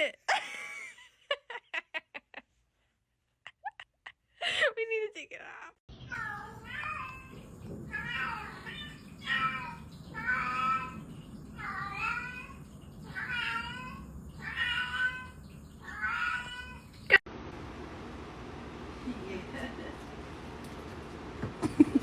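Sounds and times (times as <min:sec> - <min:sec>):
cat meowing: 0:06.1 - 0:11.0, 0:11.6 - 0:17.0.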